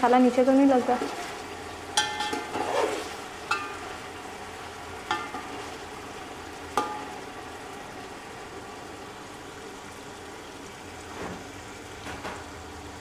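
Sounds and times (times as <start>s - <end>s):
food sizzling in oil: 0.0s - 13.0s
metal spoon clinking on pot: 2.0s - 2.6s, 3.5s - 3.8s.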